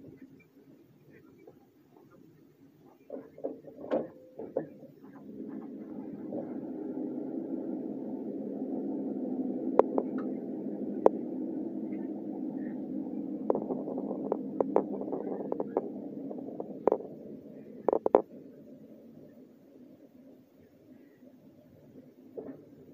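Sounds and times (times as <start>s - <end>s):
train rumbling: 2.9s - 22.9s
sharp clicks and knocks: 3.1s - 5.7s, 9.8s - 10.4s, 13.4s - 17.2s, 17.8s - 18.3s.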